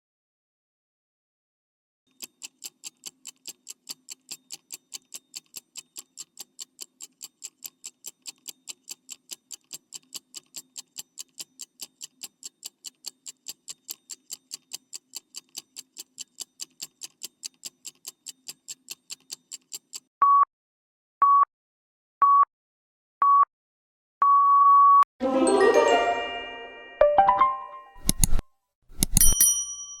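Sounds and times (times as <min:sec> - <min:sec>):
clock ticking: 0:02.1 - 0:20.0
bright chime ringing: 0:25.2 - 0:28.0.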